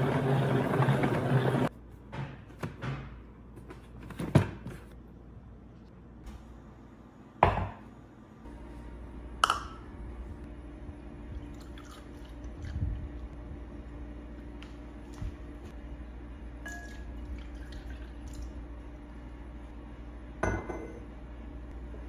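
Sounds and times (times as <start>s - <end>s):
steady low hum: 4.9s - 22.0s.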